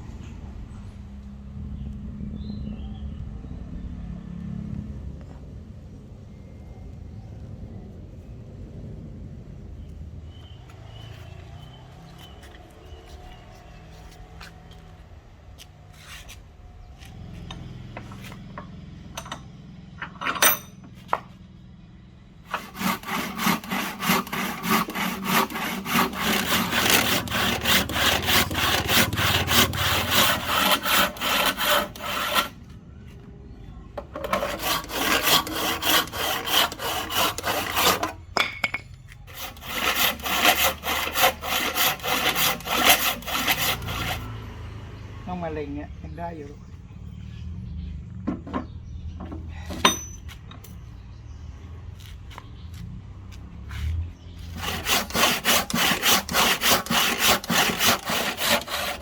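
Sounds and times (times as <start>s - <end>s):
hand saw cutting wood: 22.5s - 32.6s, 34.2s - 38.2s, 39.3s - 44.4s, 53.8s - 59.0s.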